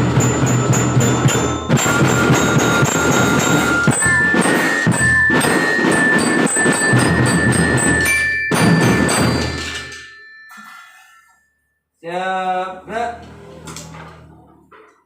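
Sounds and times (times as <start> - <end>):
drum band playing: 0.0 - 10.0
glockenspiel notes: 0.0 - 11.9.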